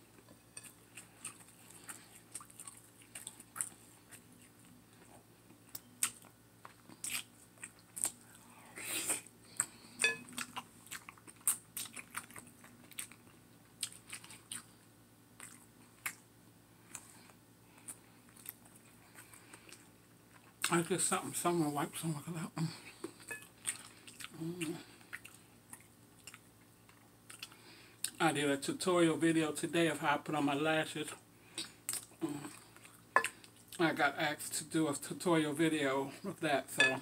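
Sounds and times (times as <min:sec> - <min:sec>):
wet chewing and mouth smacks: 0:00.2 - 0:08.4, 0:09.5 - 0:20.8, 0:23.0 - 0:28.2.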